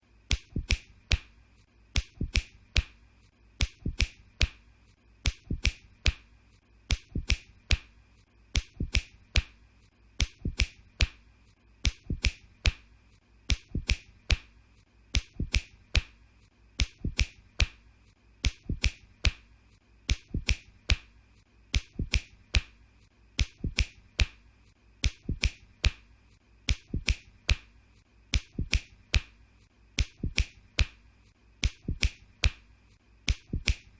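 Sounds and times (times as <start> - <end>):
fingers snapping: 0.2 - 1.3, 1.9 - 3.0, 3.6 - 4.6, 5.2 - 7.9, 8.5 - 9.6, 10.2 - 11.2, 11.8 - 14.5, 15.1 - 16.2, 16.8 - 17.8, 18.4 - 21.1, 21.7 - 22.8, 23.4 - 24.4, 25.0 - 26.0, 26.6 - 27.7, 28.3 - 29.4, 30.0 - 31.0, 31.6 - 32.6, 33.2 - 33.9.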